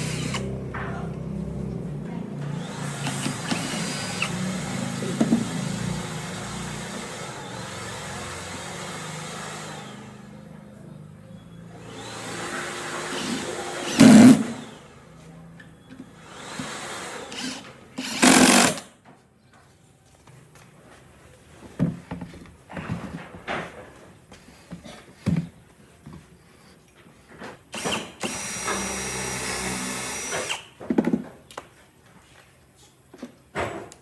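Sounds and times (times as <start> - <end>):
handheld power tool running: 0.0 - 1.2, 2.4 - 10.4, 11.8 - 15.0, 16.2 - 18.9, 27.7 - 30.7.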